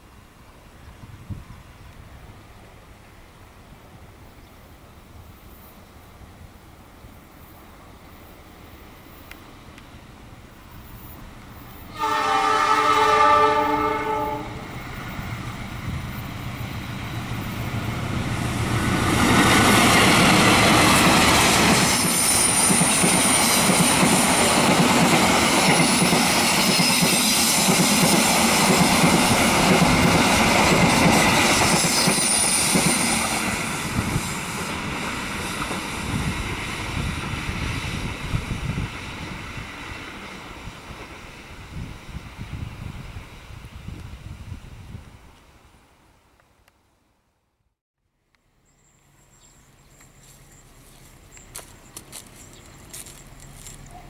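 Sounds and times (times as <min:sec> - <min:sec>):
train horn blast: 0:11.9 - 0:14.7
train wheels clacking over rail joints: 0:19.0 - 0:33.7.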